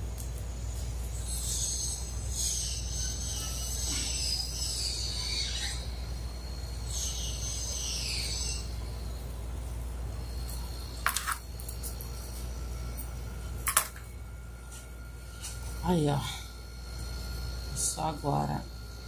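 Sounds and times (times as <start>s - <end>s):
steady low hum: 0.0s - 19.0s
small bird singing: 0.6s - 9.2s.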